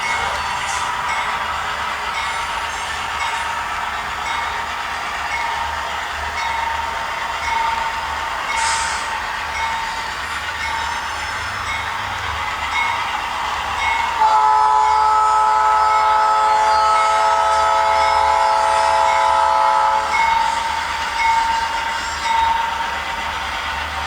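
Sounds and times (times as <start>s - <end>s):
model locomotive diesel engine sound: 0.0s - 24.0s
locomotive horn chord blast: 14.2s - 20.2s.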